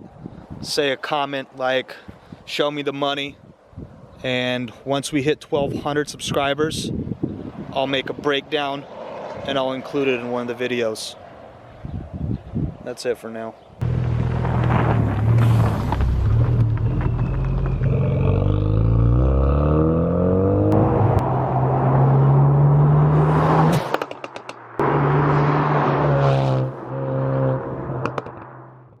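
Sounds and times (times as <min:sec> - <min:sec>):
car engine accelerating: 0:13.8 - 0:24.0, 0:24.6 - 0:28.8.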